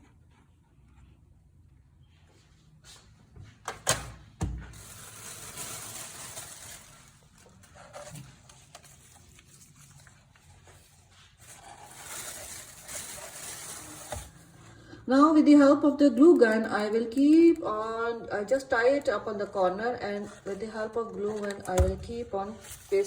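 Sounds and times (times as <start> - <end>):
cardboard and fibre rustling: 4.6 - 14.6, 20.0 - 23.0.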